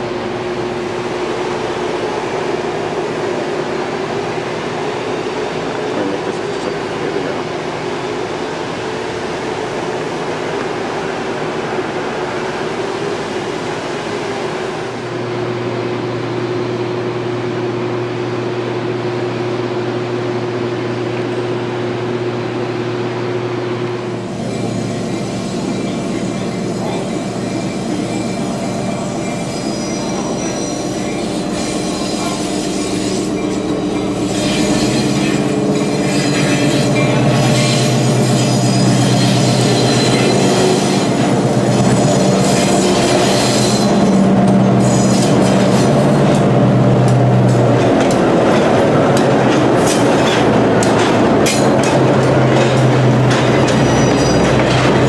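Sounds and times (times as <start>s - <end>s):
diesel locomotive engine hum: 0.0s - 55.0s
train wheels squealing: 24.2s - 46.4s, 53.6s - 54.8s
wheels clicking over rail joints: 46.3s - 55.0s.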